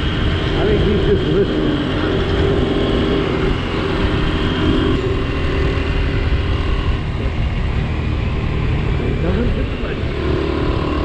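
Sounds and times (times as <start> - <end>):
motorcycle engine running: 0.0 - 11.0
wind rumbling on microphone: 0.0 - 11.0.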